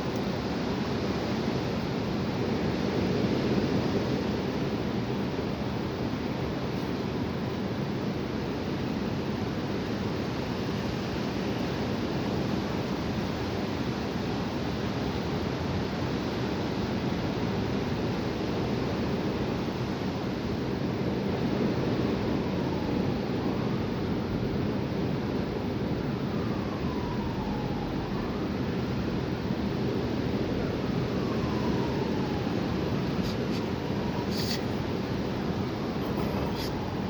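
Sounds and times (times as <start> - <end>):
strong wind blowing: 21.2 - 37.0.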